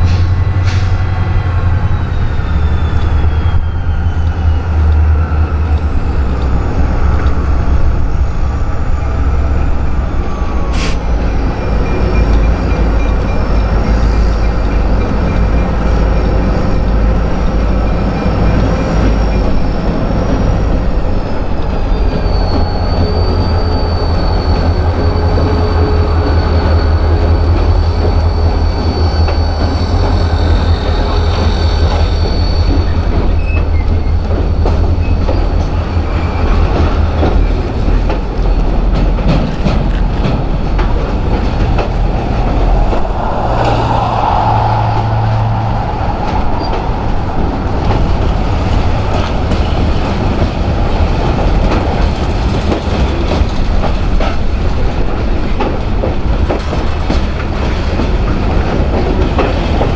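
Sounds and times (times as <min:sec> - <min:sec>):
high wheel squeal: 0:00.0 - 0:37.7, 0:41.0 - 0:53.7
train cars rumbling on rails: 0:00.0 - 0:59.9
wheels clickety-clack: 0:27.2 - 0:43.1, 0:47.8 - 0:59.9.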